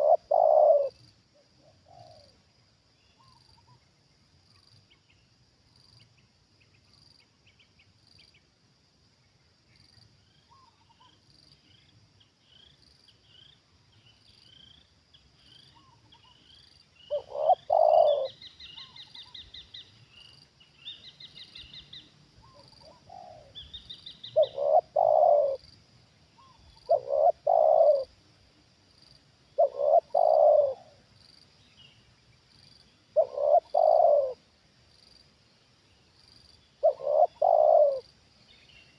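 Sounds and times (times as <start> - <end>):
dove cooing: 0.0 - 1.0, 1.6 - 2.4, 17.1 - 19.4, 22.4 - 25.7, 26.4 - 28.2, 29.6 - 31.0, 33.2 - 34.4, 36.8 - 38.1
small birds chirping: 0.0 - 8.5, 9.2 - 25.8, 26.4 - 28.2, 28.9 - 38.9
high insect drone: 8.0 - 38.9.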